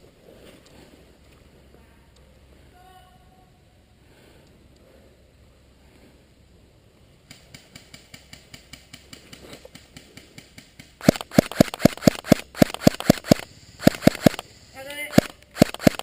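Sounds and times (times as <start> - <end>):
rapid airsoft gunfire: 7.3 - 14.4, 15.1 - 16.0
distant airsoft gun shots: 10.1 - 14.4, 15.1 - 16.0.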